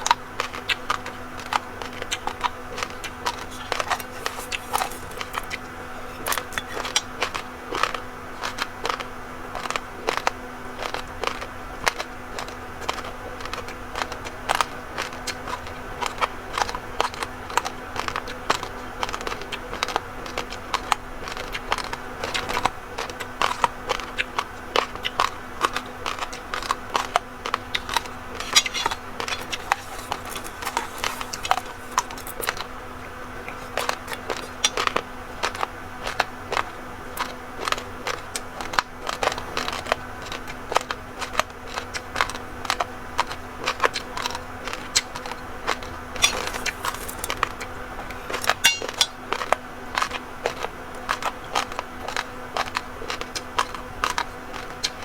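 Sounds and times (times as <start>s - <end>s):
rice grains being crunched: 27.8s - 32.6s, 46.1s - 47.5s.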